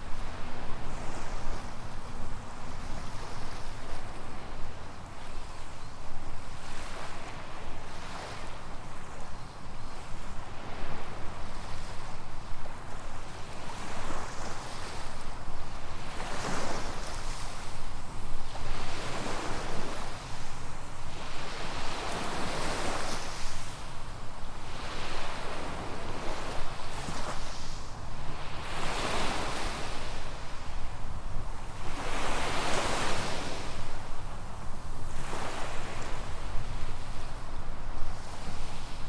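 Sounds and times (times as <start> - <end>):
waves breaking on sandy beach: 16.0 - 39.0.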